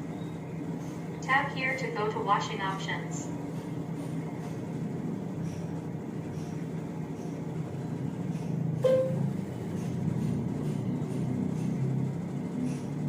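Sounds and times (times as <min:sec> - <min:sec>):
low background hum: 0:00.0 - 0:13.0
short touchscreen beep: 0:08.8 - 0:09.2.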